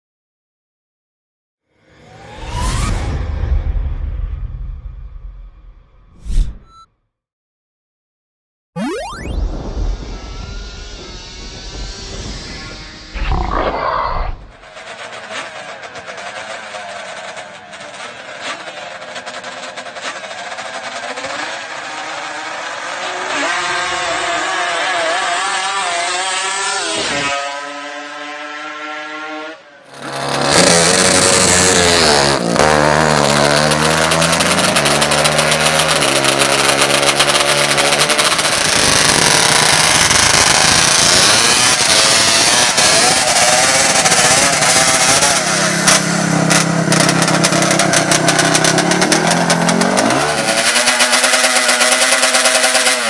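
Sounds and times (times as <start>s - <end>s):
atv engines revving: 14.6s - 27.4s, 29.9s - 53.0s.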